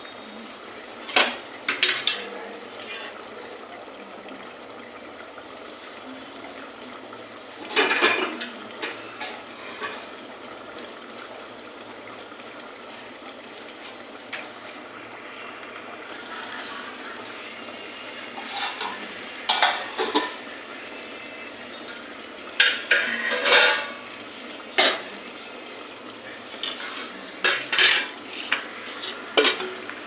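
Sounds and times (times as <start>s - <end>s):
utensils clattering on dishes: 1.1s - 3.2s, 7.7s - 10.2s, 18.4s - 20.4s, 22.6s - 24.0s, 26.6s - 29.8s.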